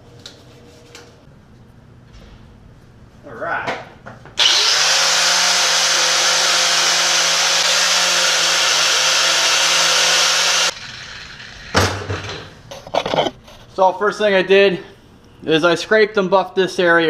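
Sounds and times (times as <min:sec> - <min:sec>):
power buffer running: 0:04.4 - 0:12.4.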